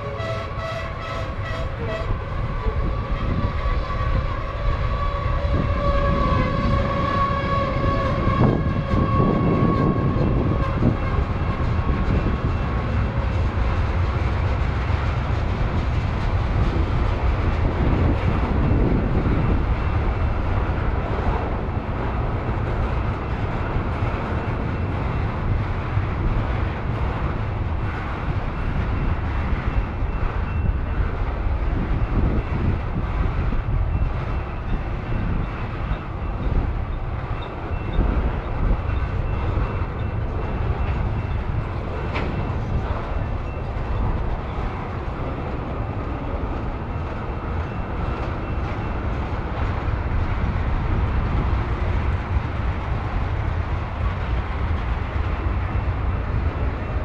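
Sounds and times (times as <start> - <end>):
steel wheels rattling on rail: 0.0 - 57.0.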